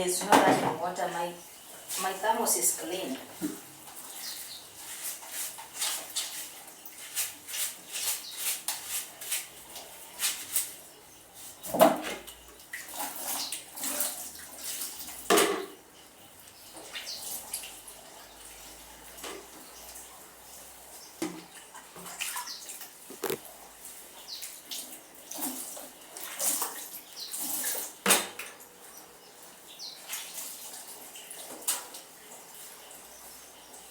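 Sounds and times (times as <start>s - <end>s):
water splashing in a basin: 0.2s - 15.9s, 16.6s - 28.4s.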